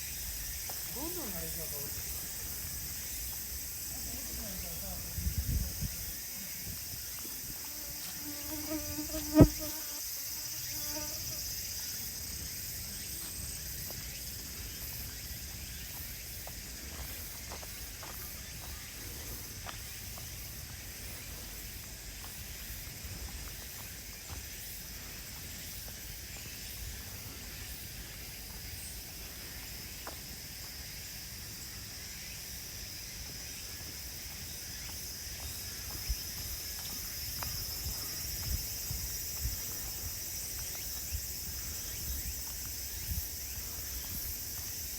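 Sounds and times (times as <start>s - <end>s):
insects singing: 0.0s - 44.9s
footsteps on path: 12.4s - 44.9s.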